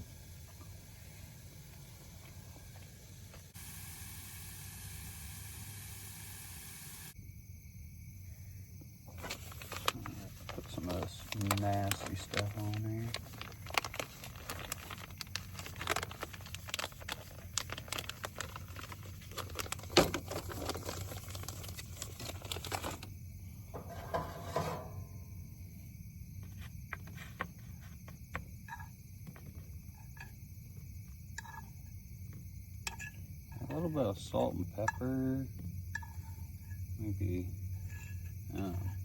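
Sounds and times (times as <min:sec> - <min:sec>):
clicks taps and crinkles: 0:09.1 - 0:23.1, 0:26.4 - 0:33.7, 0:34.3 - 0:39.0.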